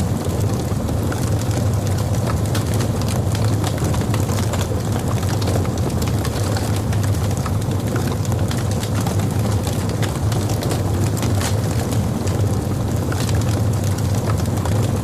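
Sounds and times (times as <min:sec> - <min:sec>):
logs burning and crackling: 0:00.0 - 0:15.0.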